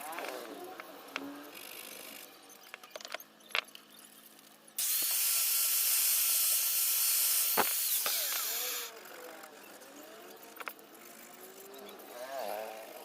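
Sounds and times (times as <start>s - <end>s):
power tool whining: 4.8s - 13.0s.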